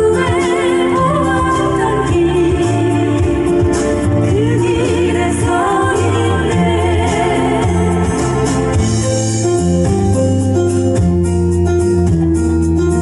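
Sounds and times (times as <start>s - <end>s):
women singing in harmony: 0.0s - 9.0s
keyboard chords and bass: 0.0s - 13.0s.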